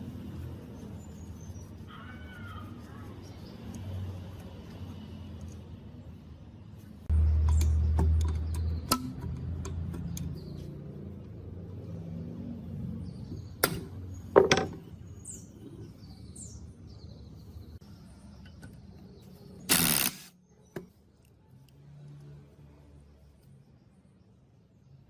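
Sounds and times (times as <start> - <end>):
loud hiss: 19.7 - 20.3.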